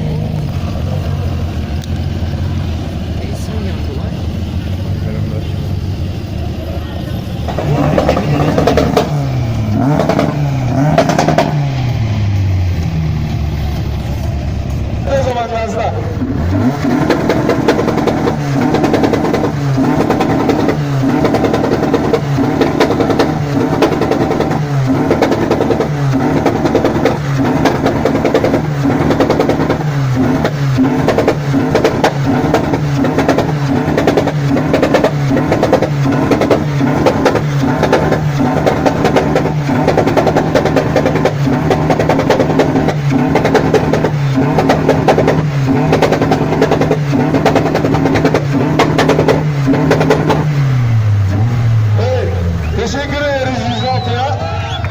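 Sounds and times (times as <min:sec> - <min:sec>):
engine revving hard: 0:06.5 - 0:13.6, 0:15.0 - 0:54.9.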